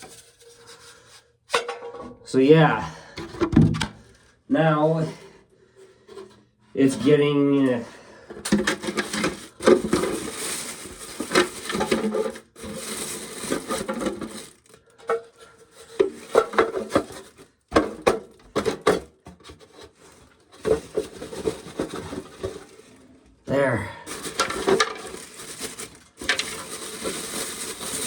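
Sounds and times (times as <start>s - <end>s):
corn kernels rattling and pouring: 8.6s - 14.9s, 24.1s - 28.0s.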